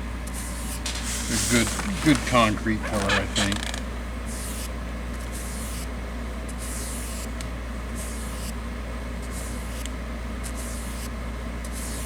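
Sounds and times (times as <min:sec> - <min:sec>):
steady low hum: 0:00.0 - 0:12.0
paintbrush scratchy swishes: 0:00.6 - 0:03.1.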